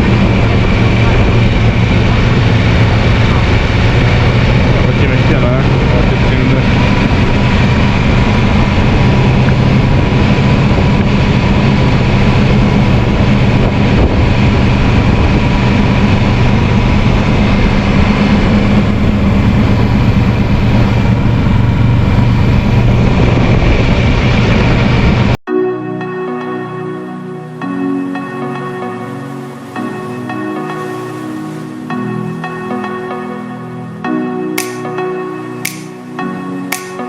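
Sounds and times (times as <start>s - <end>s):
motorcycle engine running: 0.0s - 25.4s
wind noise: 0.0s - 25.4s.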